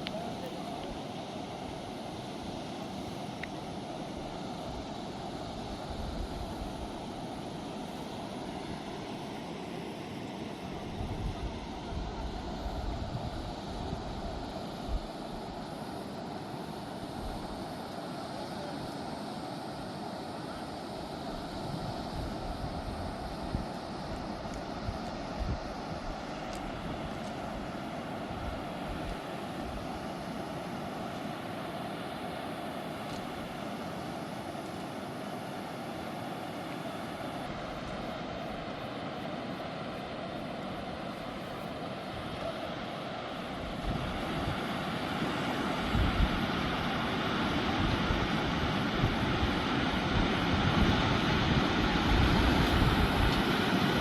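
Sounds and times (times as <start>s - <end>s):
fast-flowing river: 0.0s - 54.0s
wind buffeting microphone: 10.8s - 15.5s, 21.4s - 27.6s, 43.6s - 54.0s.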